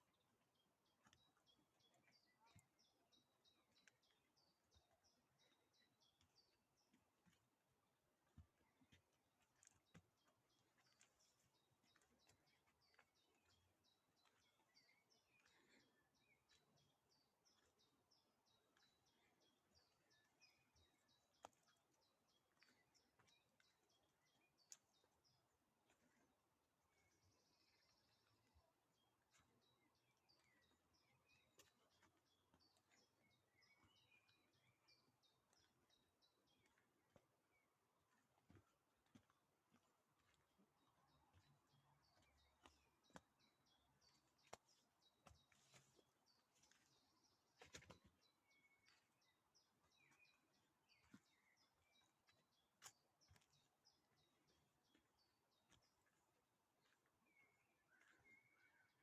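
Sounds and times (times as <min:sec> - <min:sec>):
faint bird chirps: 0:00.0 - 0:07.4, 0:56.8 - 0:59.0
birds chirping and trilling: 0:09.6 - 0:39.3, 0:40.2 - 0:59.0.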